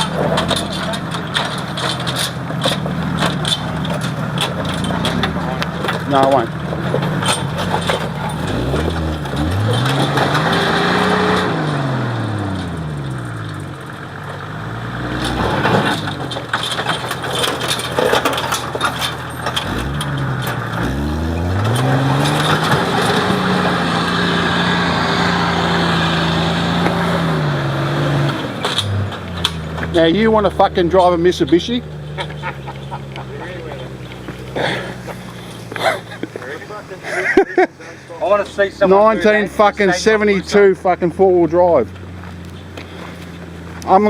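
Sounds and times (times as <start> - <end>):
engine revving hard: 0.0 - 13.7, 14.4 - 16.5, 19.4 - 36.4.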